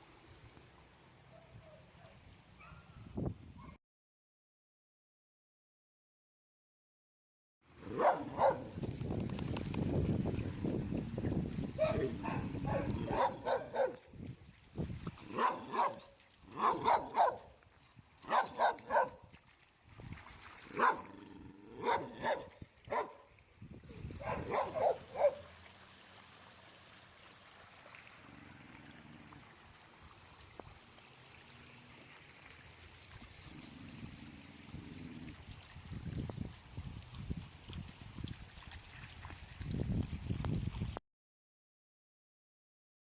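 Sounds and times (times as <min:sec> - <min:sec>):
dog barking: 0:01.3 - 0:02.9, 0:07.9 - 0:08.7, 0:11.8 - 0:14.0, 0:15.3 - 0:17.5, 0:18.3 - 0:19.2, 0:20.8 - 0:21.1, 0:21.8 - 0:23.3, 0:24.2 - 0:25.5.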